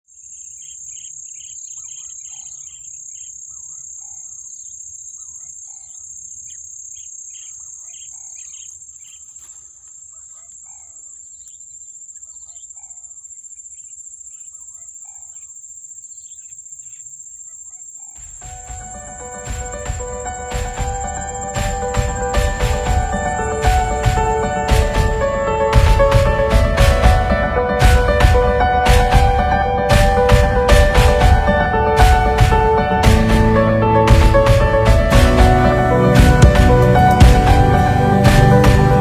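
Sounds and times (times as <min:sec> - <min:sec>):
high-pitched insect drone: 0:18.0 - 0:26.4
music: 0:18.3 - 0:39.0.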